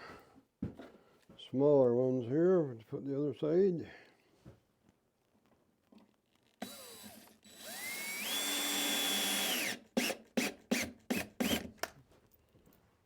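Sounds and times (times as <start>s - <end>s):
power drill driving screw: 6.6s - 11.9s.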